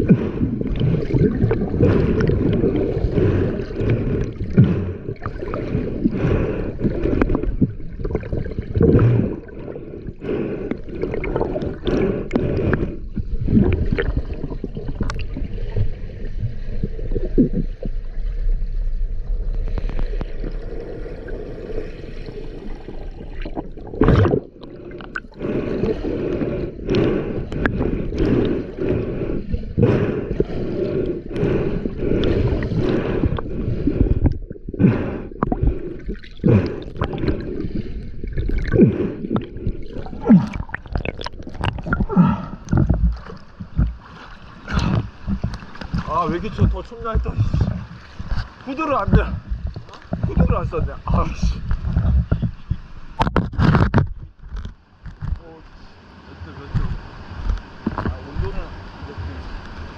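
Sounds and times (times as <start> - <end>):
stream water gurgling: 0.0 - 59.9
knocks and splashes: 23.4 - 26.0, 31.4 - 55.5.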